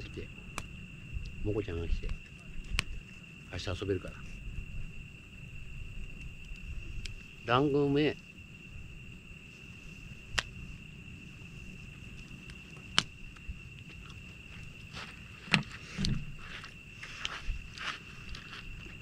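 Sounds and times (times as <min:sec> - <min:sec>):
sharp fire pops: 0:00.0 - 0:03.0, 0:10.2 - 0:10.7, 0:12.4 - 0:13.6
campfire wood crackling: 0:00.0 - 0:19.0
high-pitched insect trill: 0:00.0 - 0:19.0.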